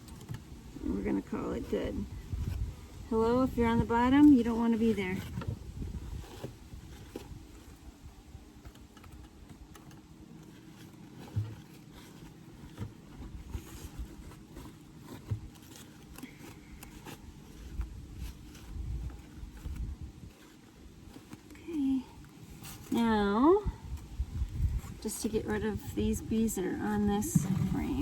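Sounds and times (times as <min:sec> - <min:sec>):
wooden hive parts clicking and scraping: 0:00.0 - 0:28.0.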